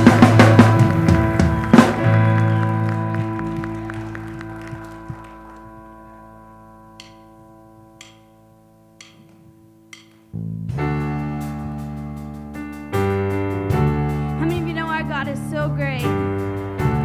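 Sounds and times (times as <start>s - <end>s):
band playing keyboard and bass: 0.0s - 17.0s
held keyboard chord: 0.0s - 17.0s
soft ticks: 7.0s - 7.2s, 8.0s - 8.3s, 9.0s - 10.3s.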